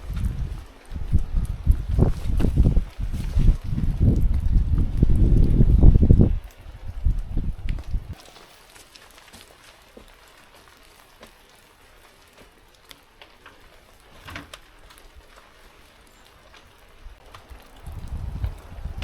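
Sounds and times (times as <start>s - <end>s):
wind buffeting microphone: 0.0s - 8.2s, 16.8s - 19.0s
raindrops tapping: 0.0s - 19.0s
steady rain: 0.0s - 19.0s.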